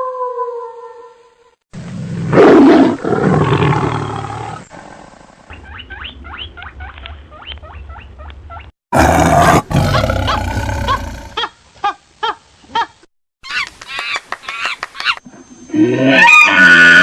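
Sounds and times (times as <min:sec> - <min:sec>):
tiger roaring: 0:08.9 - 0:11.4.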